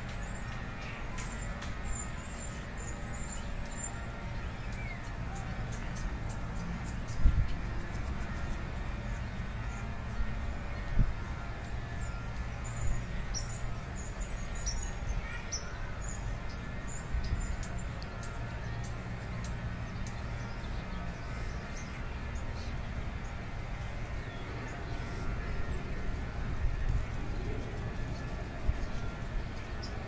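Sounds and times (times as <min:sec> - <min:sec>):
birds chirping: 0:00.0 - 0:30.0
steady low rumble: 0:18.9 - 0:30.0.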